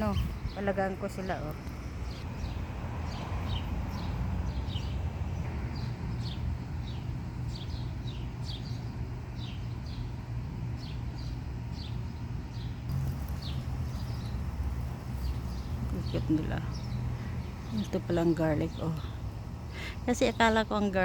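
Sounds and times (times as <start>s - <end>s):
songbirds chirping: 0.0s - 21.0s
steady low rumble: 8.8s - 21.0s.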